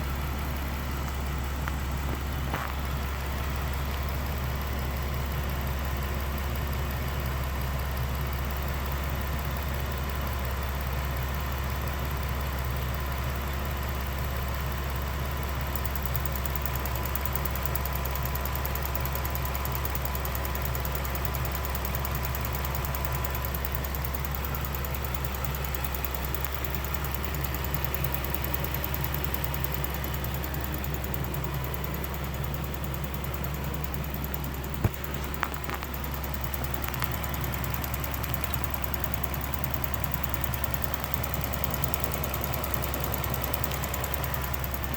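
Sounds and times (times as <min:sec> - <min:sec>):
engine idling: 0:00.0 - 0:44.9
fast even ticking: 0:15.6 - 0:44.9.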